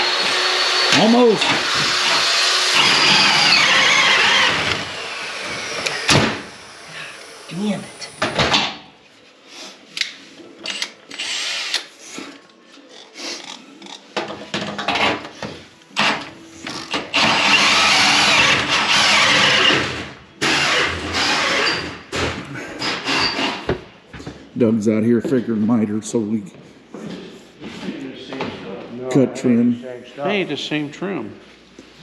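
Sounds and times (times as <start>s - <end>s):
handheld power tool running: 0.0s - 8.1s, 17.0s - 21.9s.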